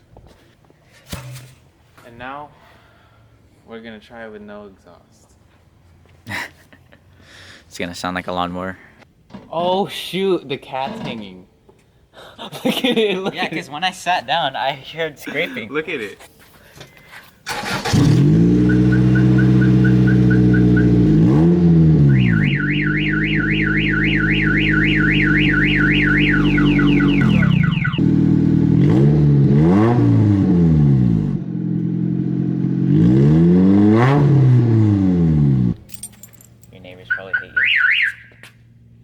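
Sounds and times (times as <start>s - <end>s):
car engine revving: 17.5s - 35.8s
car alarm beeps and siren: 18.6s - 21.2s, 22.0s - 28.0s, 37.1s - 38.5s.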